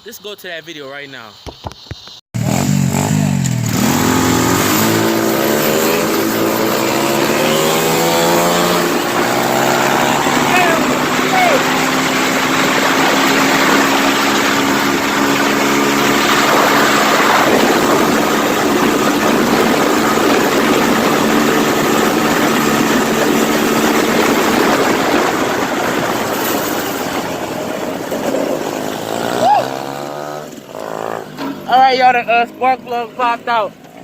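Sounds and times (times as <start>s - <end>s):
motorbike engines running: 2.4s - 34.0s
loud noisy rush: 3.6s - 30.6s.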